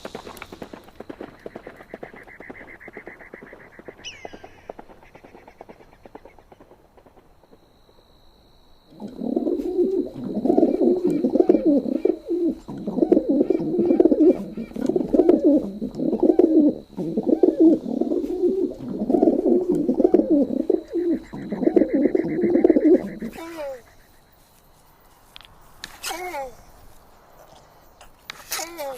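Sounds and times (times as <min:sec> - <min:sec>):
pigeon cooing: 0:08.9 - 0:24.1.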